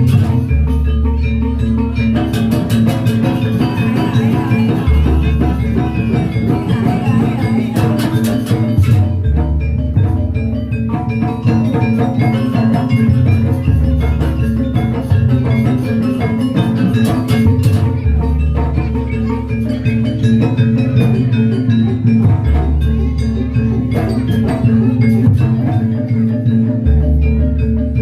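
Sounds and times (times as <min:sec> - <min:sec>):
drums: 0:00.0 - 0:28.0
metallophones playing melody: 0:00.0 - 0:28.0.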